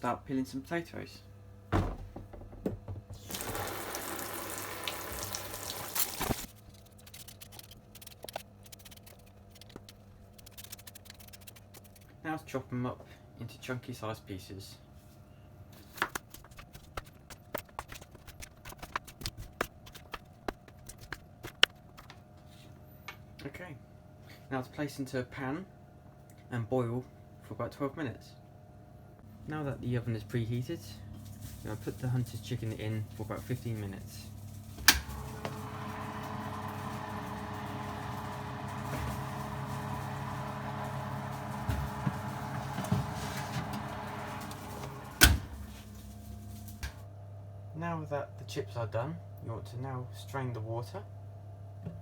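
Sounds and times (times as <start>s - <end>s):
appliance fan motor humming: 0.7s - 12.7s, 29.2s - 47.2s.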